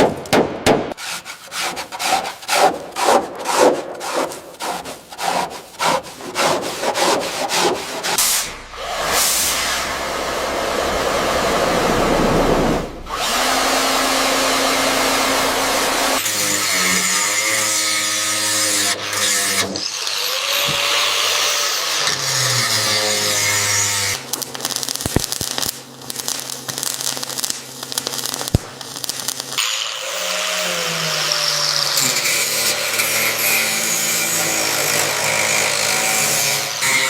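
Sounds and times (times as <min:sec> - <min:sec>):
hand scraping strokes: 0:00.9 - 0:09.7
power tool running: 0:08.5 - 0:16.8
humming machine: 0:08.6 - 0:16.2.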